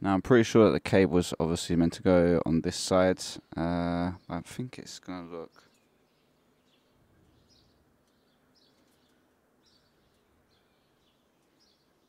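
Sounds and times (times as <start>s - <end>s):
faint bird chirps: 3.4s - 12.0s.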